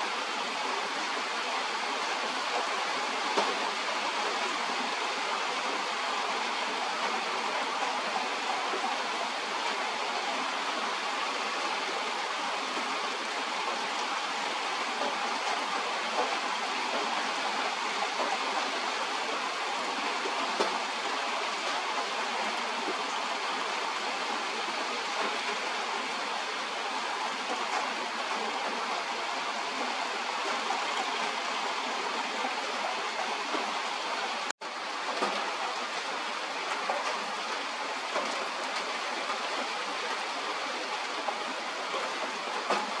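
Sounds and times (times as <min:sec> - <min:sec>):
steady rain falling: 0:00.0 - 0:43.0.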